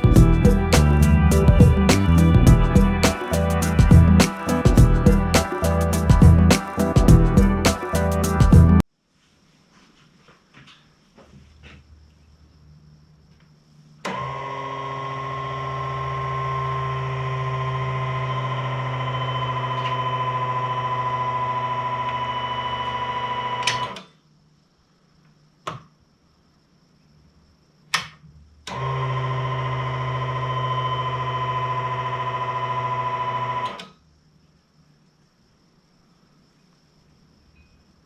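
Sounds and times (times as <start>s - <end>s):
electric fuel pump whining: 28.7s - 33.8s.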